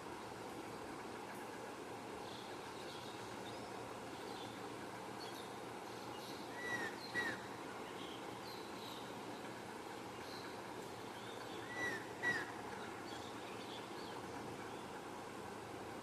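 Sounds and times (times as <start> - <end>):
steady background hiss: 0.0 - 16.0
arched bird calls: 6.5 - 7.5, 11.2 - 13.4.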